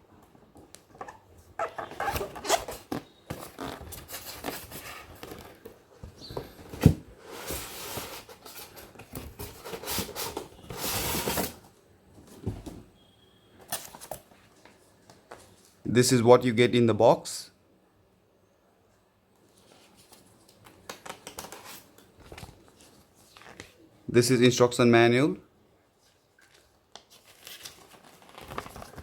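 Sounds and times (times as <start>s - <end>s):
packaging rustling and scraping: 1.0s - 11.7s, 26.4s - 29.0s.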